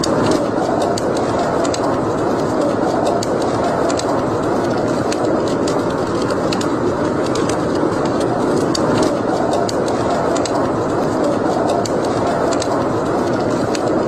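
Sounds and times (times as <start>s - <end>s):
fire crackling and popping: 0.0s - 14.0s
rushing flames: 0.0s - 14.0s.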